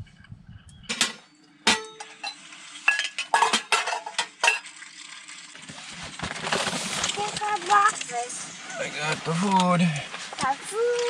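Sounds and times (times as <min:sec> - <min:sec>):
metal cookware clinking: 0:00.8 - 0:04.8.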